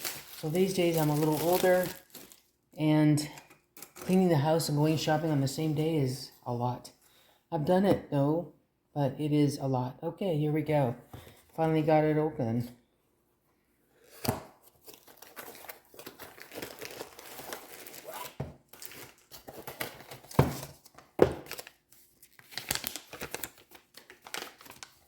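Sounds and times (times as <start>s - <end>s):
packaging crinkling and rustling: 0.0s - 2.7s, 14.0s - 25.0s.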